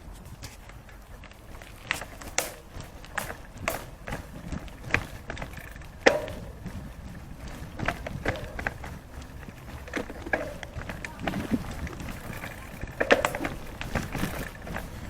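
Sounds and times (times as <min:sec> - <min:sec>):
sharp knocks and clicks: 0:04.8 - 0:06.9.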